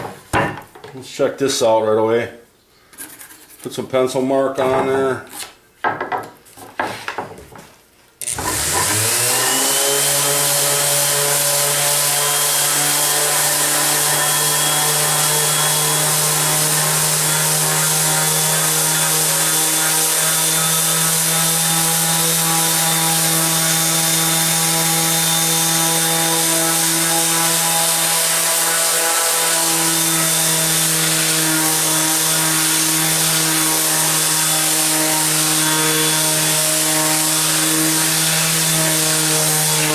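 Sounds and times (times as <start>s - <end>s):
orbital sander whining: 8.2s - 39.9s.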